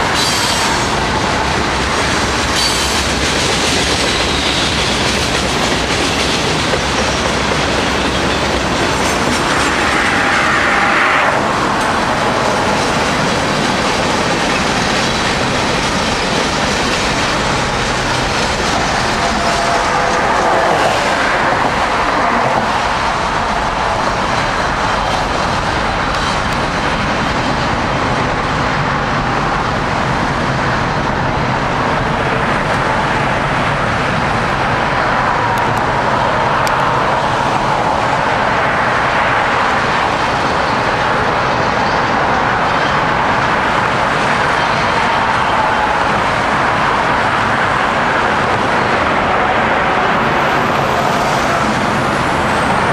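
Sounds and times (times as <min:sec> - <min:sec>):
freight train wheels rumbling: 0:00.0 - 0:52.9.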